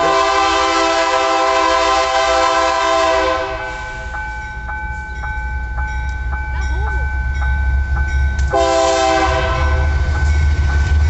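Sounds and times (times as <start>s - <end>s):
locomotive horn blowing: 0.0s - 4.0s, 8.5s - 10.0s.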